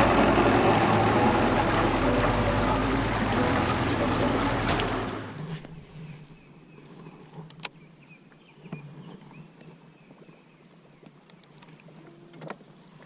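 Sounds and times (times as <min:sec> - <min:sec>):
low steady hum: 0:00.0 - 0:05.8.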